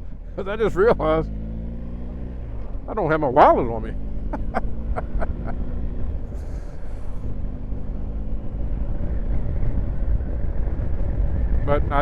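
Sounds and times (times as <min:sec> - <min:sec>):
motorcycle engine running: 0:00.0 - 0:12.0
wind rumble on microphone: 0:08.4 - 0:12.0.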